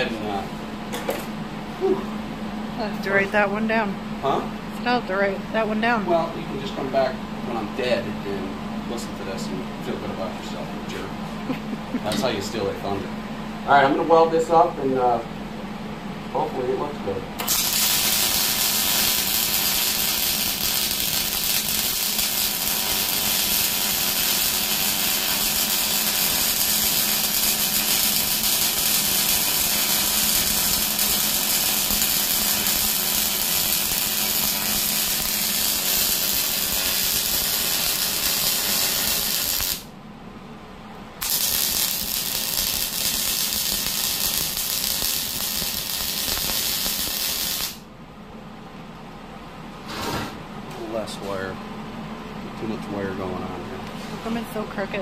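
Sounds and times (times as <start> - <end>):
welder crackling hiss: 17.4 - 39.9, 41.2 - 47.8.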